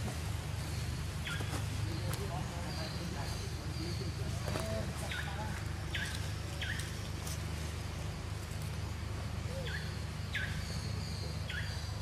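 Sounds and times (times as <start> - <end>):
steady low hum: 0.0 - 12.0
high downward bird calls: 0.5 - 7.1, 9.2 - 12.0.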